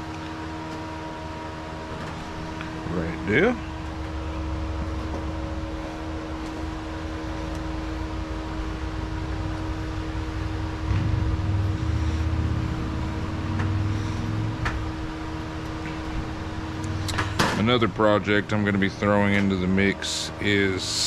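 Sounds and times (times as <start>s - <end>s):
mechanical hum: 0.0s - 21.0s
deep rumble: 2.8s - 17.4s.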